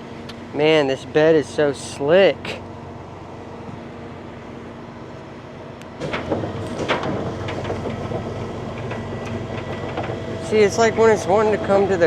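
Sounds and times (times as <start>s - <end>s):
metal clanks and rattles: 6.0s - 11.4s.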